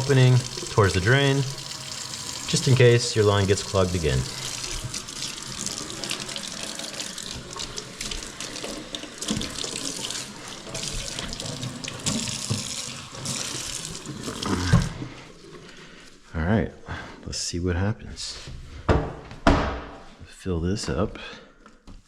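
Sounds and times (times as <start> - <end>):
water splashing into sink: 0.0 - 15.0
thump: 18.9 - 20.0.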